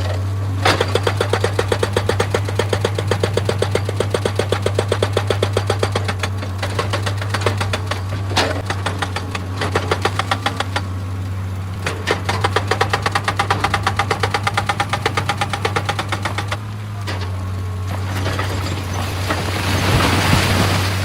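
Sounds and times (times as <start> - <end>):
hydraulic breaker hammering stone: 0.0 - 11.0, 11.8 - 16.7
excavator diesel engine running: 0.0 - 21.0.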